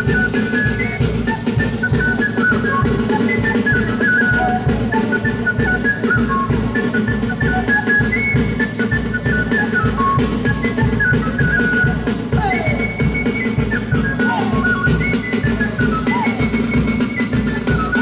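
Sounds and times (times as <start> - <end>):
drum beat: 8.4 - 18.0.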